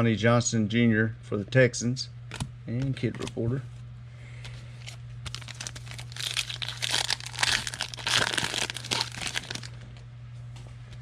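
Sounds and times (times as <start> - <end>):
wrapper tearing and crinkling: 5.3 - 9.8.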